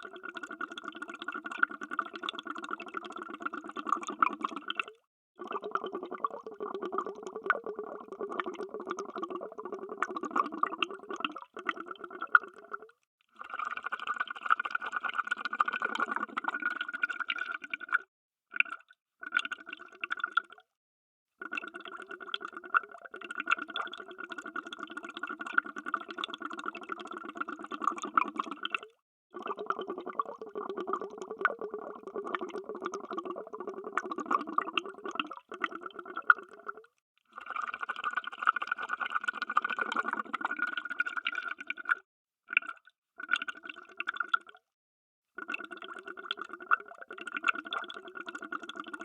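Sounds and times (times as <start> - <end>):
underwater bubbling: 0.1 - 12.9, 15.2 - 18.0, 21.5 - 38.3, 39.0 - 44.5.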